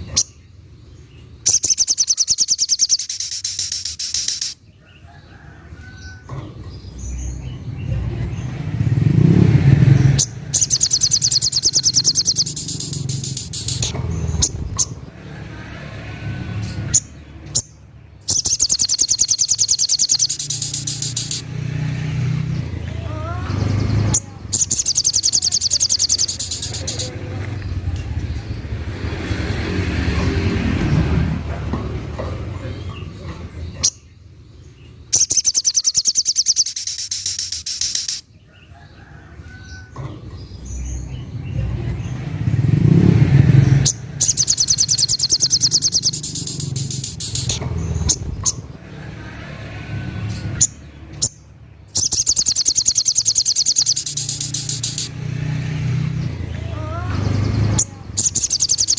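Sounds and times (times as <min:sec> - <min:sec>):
passing vehicle rumble: 0:00.0 - 0:58.9
songbird high-pitched trill: 0:01.5 - 0:04.6, 0:10.1 - 0:14.6, 0:18.3 - 0:21.5, 0:24.1 - 0:27.1, 0:35.1 - 0:38.3, 0:43.8 - 0:48.2, 0:51.2 - 0:55.2, 0:57.8 - 0:58.9.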